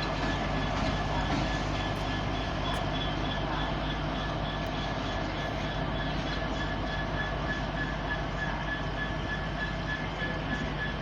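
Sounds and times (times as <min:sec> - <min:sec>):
train engine drone: 0:00.0 - 0:11.0.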